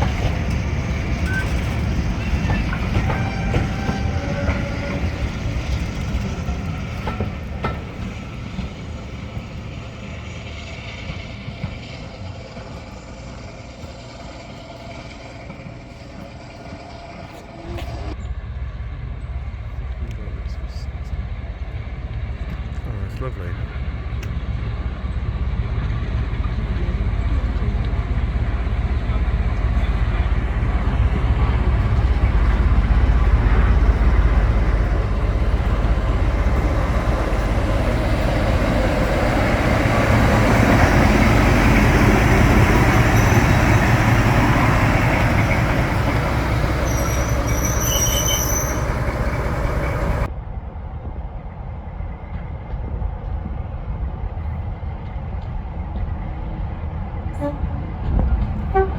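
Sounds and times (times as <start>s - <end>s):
diesel train passing: 0.0s - 58.9s
high-pitched squeal: 28.7s - 50.3s.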